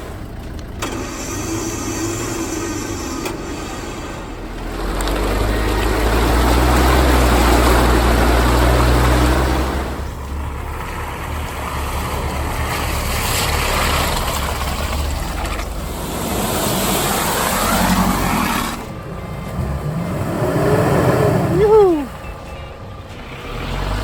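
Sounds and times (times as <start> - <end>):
off-road engine under load: 0.0 - 24.0
rushing splashing noise: 10.8 - 22.0.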